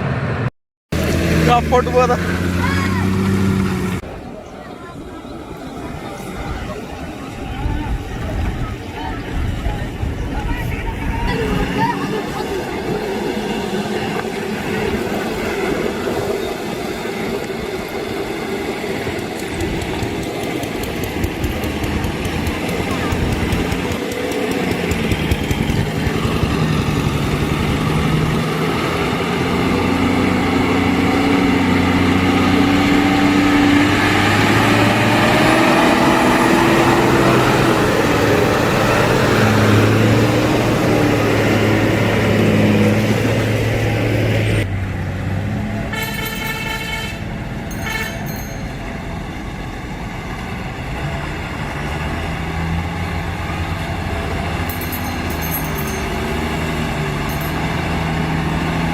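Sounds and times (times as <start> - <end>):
truck engine running: 0.0 - 4.3, 17.3 - 58.9
road noise: 0.0 - 58.9
horn blasts: 45.9 - 48.5.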